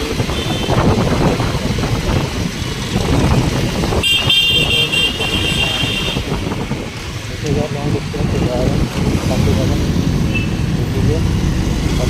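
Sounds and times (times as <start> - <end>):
road traffic rumble: 0.0 - 12.0
vehicle horn honking: 4.0 - 6.3.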